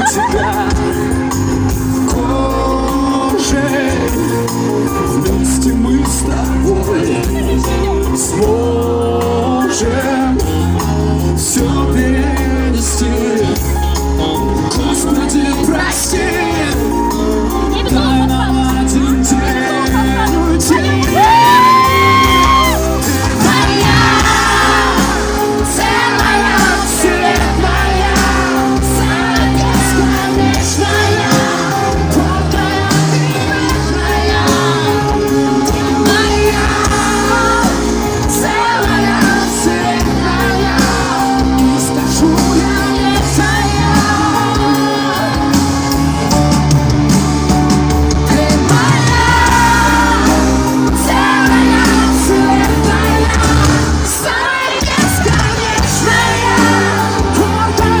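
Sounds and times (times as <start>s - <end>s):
crowd shouting and whooping: 0.0s - 2.9s, 19.7s - 58.0s
person singing: 0.0s - 46.9s, 48.0s - 58.0s
live pop band playing: 0.0s - 58.0s.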